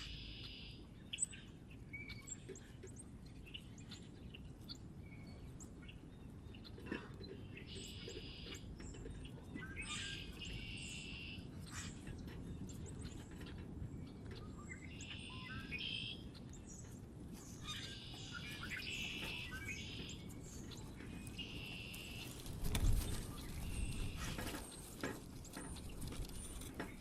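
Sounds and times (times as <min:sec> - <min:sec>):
songbirds singing and chirping: 0:00.0 - 0:27.0.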